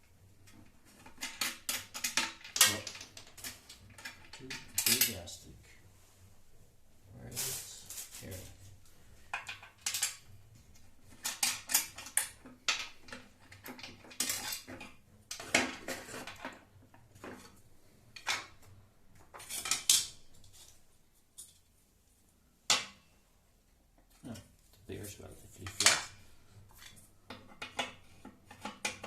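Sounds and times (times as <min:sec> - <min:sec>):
parts clicking and rattling: 0:00.4 - 0:05.5, 0:07.4 - 0:21.7, 0:25.5 - 0:29.0.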